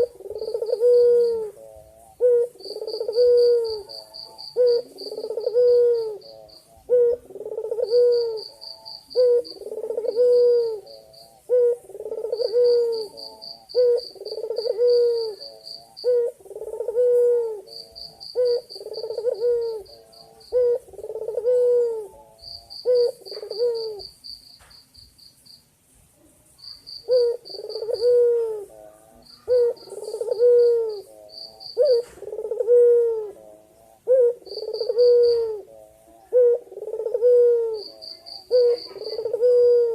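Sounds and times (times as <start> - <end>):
dove cooing: 0.0 - 24.7, 26.7 - 39.9.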